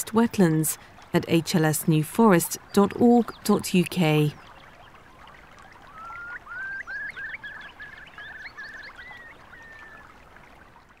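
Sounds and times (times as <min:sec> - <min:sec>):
faint bird chirps: 0:05.6 - 0:10.1
bird singing whistled notes: 0:05.9 - 0:10.0.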